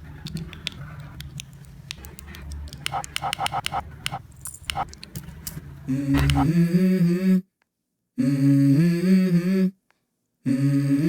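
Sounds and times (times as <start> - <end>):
wordless hummed vocal: 5.8 - 7.4, 10.5 - 11.0.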